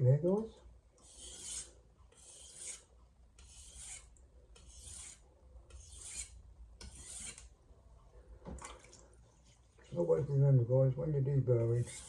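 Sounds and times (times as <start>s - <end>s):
knife scraping on whetstone: 1.0s - 7.5s, 11.7s - 12.0s.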